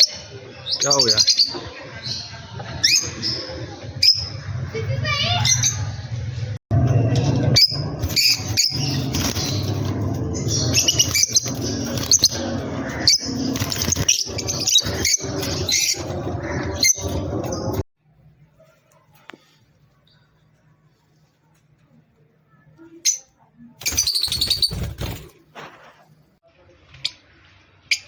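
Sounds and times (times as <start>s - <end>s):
birds chirping: 0.0s - 6.3s, 6.9s - 17.8s, 19.1s - 25.5s
low hum: 1.6s - 18.6s.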